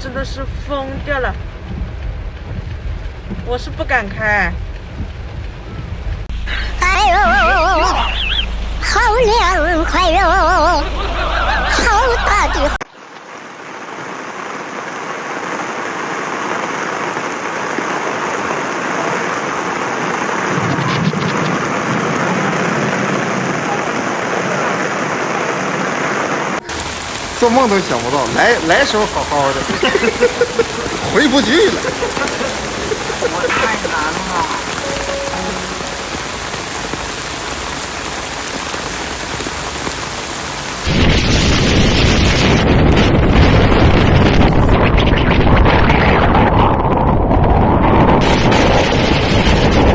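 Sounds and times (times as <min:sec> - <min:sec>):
wind buffeting microphone: 0:00.0 - 0:06.4, 0:40.8 - 0:49.9
low rumble: 0:00.0 - 0:12.8
heavy rain pouring: 0:00.0 - 0:49.9.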